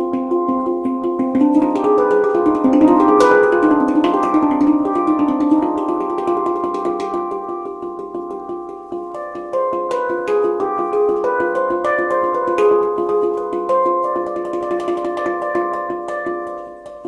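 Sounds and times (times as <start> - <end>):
handpan played with hands: 0.0 - 17.0.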